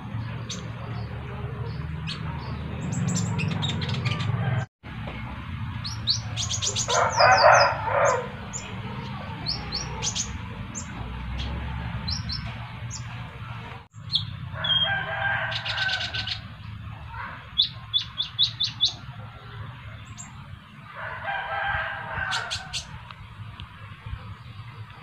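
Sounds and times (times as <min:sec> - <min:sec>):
sunbird chirping and trilling: 0:05.7 - 0:13.2, 0:13.9 - 0:20.5.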